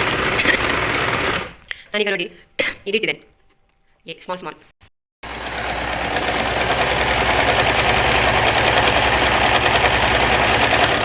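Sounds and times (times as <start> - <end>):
sewing machine stitching: 0.0 - 1.6, 5.2 - 11.0.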